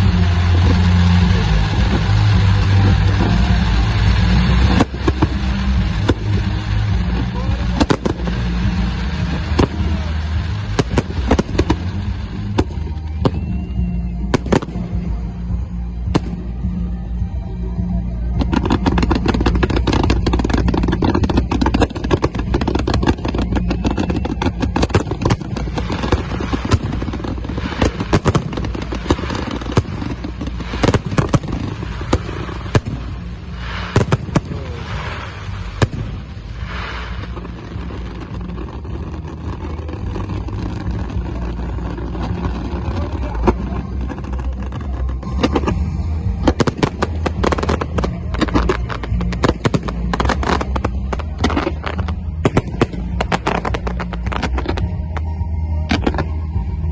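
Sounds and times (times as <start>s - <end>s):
fireworks bangs: 0.0s - 17.0s, 18.2s - 56.8s
fireworks crackling: 0.0s - 56.9s
low rumble: 0.0s - 56.9s.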